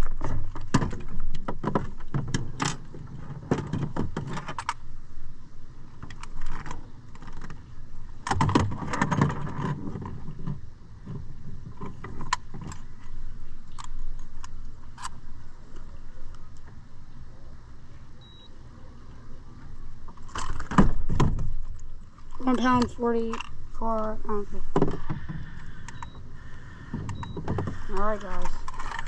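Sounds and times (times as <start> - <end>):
gear clattering and rattling: 27.0 - 29.0.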